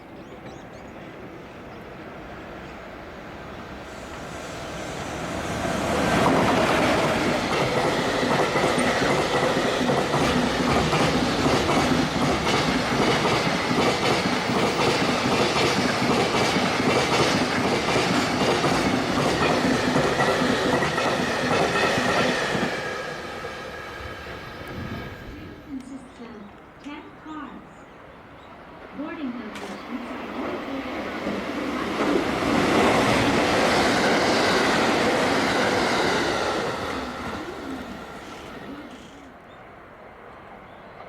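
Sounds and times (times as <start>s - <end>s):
freight train passing: 0.0s - 41.0s
wheels clacking over rail joints: 6.0s - 22.9s.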